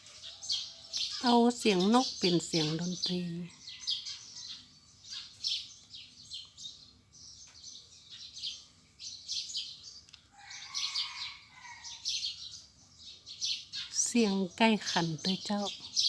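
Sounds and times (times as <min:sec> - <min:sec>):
small birds chirping: 0:00.0 - 0:16.0
rooster crowing: 0:10.3 - 0:12.2.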